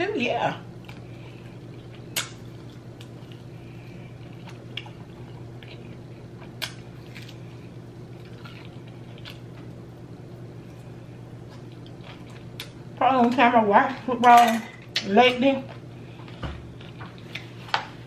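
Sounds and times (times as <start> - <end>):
wet chewing mouth sounds: 0.8 - 7.4.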